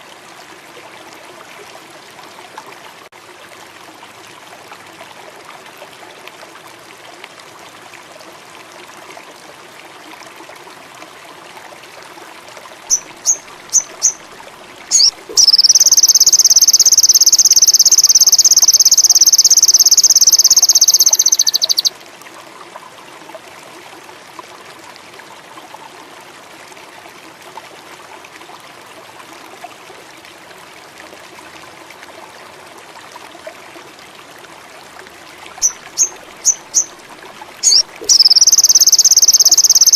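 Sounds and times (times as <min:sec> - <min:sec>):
flowing water: 0:00.0 - 0:39.9
bird high rapid trill: 0:12.9 - 0:14.2, 0:14.9 - 0:21.9, 0:37.6 - 0:39.9
songbird chirps: 0:12.9 - 0:14.2, 0:14.9 - 0:21.9, 0:35.6 - 0:37.0, 0:37.6 - 0:39.9
insects: 0:14.9 - 0:21.9, 0:37.6 - 0:39.9.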